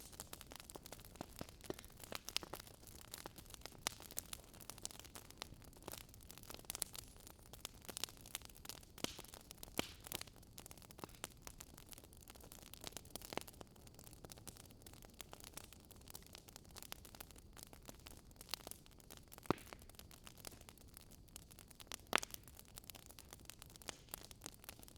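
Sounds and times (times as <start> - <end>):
faint fire hiss: 0.0 - 11.6
wood fire pops and snaps: 0.0 - 24.9.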